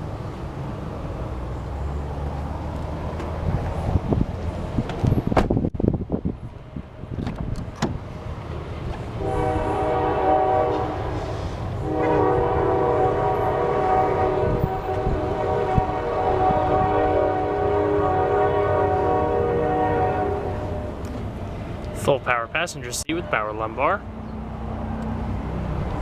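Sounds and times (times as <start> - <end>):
multi-note horn blast: 9.2 - 21.0.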